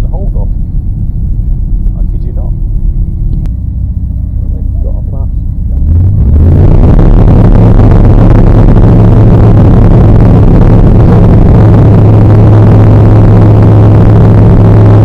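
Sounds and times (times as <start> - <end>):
light aircraft engine at full power: 6.7 - 15.0.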